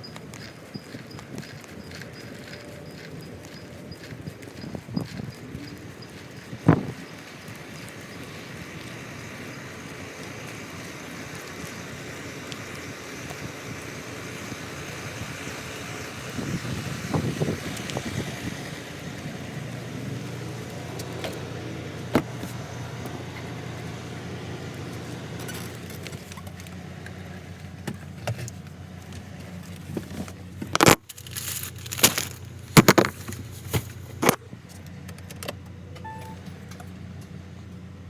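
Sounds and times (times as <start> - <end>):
vehicle engine running: 0.0 - 38.0
handling or rustling: 28.0 - 34.4.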